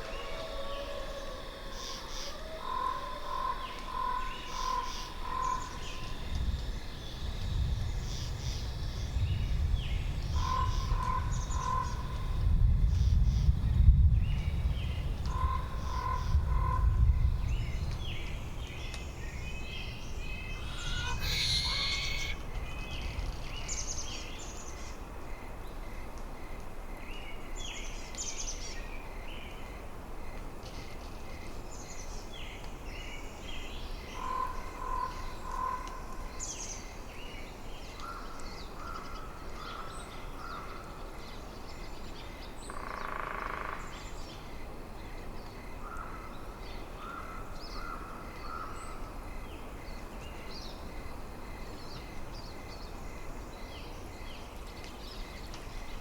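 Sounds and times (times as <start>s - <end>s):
low wind rumble: 5.2s - 25.7s
harsh caw-like bird call: 20.5s - 22.4s
short bird chirps: 20.6s - 22.4s.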